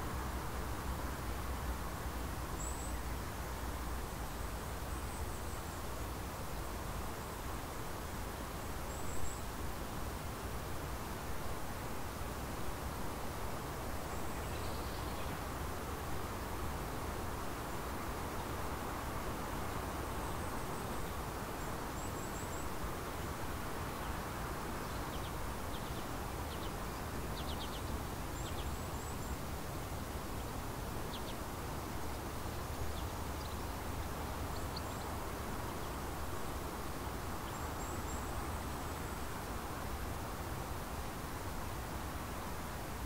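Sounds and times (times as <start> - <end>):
steady background hiss: 0.0 - 43.0.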